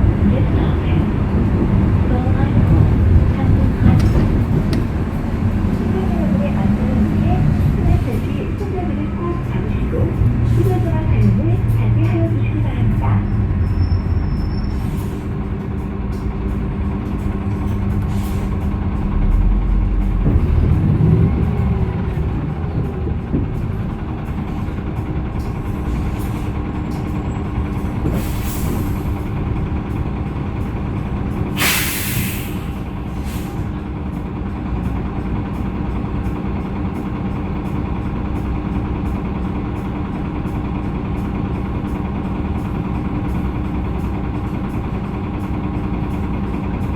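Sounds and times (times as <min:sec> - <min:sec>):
bus engine running: 0:00.0 - 0:46.9
compressed air hissing: 0:31.6 - 0:33.6.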